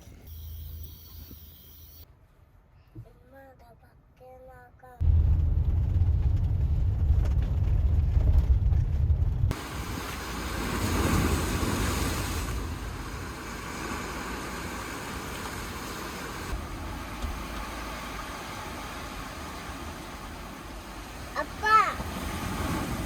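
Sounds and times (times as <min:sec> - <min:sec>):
sea surf and wind: 0:09.5 - 0:23.0.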